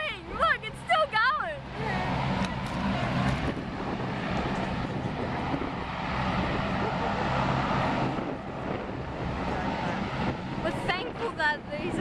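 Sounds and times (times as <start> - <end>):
turboprop engines droning: 0.0 - 12.0.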